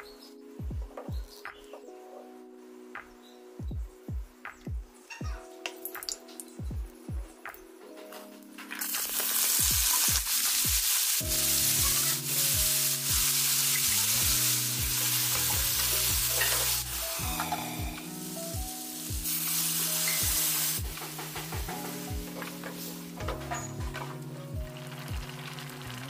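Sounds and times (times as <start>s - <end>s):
music with a steady beat: 0.0s - 1.8s, 2.9s - 8.4s, 9.0s - 26.0s
water poured into hot oil: 8.8s - 17.0s, 24.8s - 26.0s
food sizzling in hot oil: 8.8s - 26.0s.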